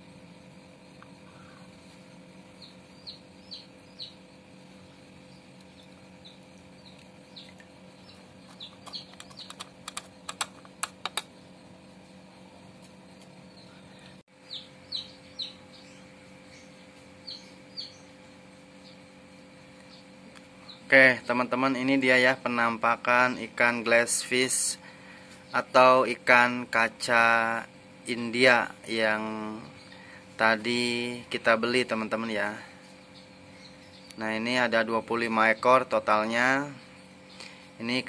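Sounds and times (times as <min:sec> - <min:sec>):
small birds chirping: 0:00.0 - 0:38.0
steady low hum: 0:00.0 - 0:38.0
sharp clicks: 0:08.5 - 0:11.4.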